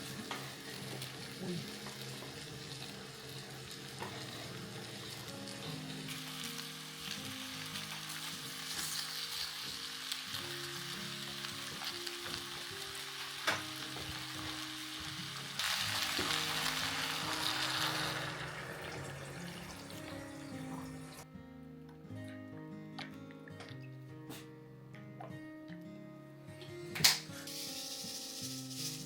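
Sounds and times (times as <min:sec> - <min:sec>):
food sizzling in a pan: 0:00.0 - 0:21.2, 0:27.2 - 0:29.0.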